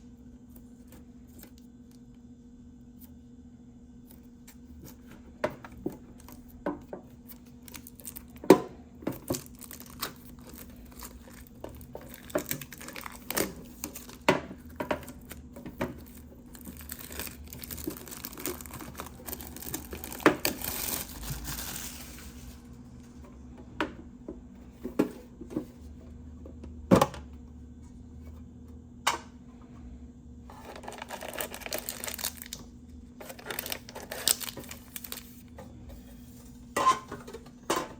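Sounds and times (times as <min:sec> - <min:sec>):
plastic wrapping crinkling: 0:07.2 - 0:08.4, 0:09.1 - 0:14.3, 0:15.0 - 0:22.7, 0:30.5 - 0:35.5
plastic being torn open: 0:09.2 - 0:14.3, 0:16.0 - 0:22.6, 0:30.7 - 0:35.4.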